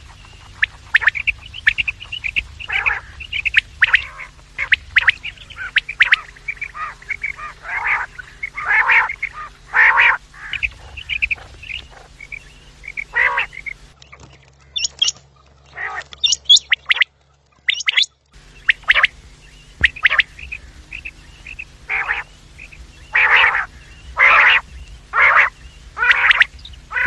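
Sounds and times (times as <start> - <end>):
high-pitched chirps: 0.0 - 14.0, 16.2 - 17.1, 17.7 - 27.0
quail calling: 0.0 - 14.0, 14.6 - 27.0.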